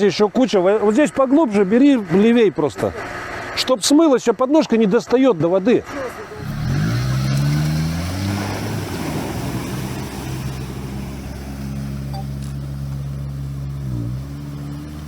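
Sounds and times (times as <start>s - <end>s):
atv engine running: 5.8s - 15.0s
water splashing: 6.0s - 15.0s.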